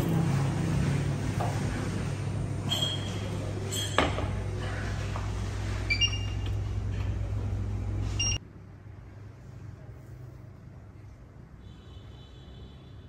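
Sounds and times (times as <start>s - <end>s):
steady low hum: 0.0s - 11.2s
short electronic beeps: 8.2s - 8.4s.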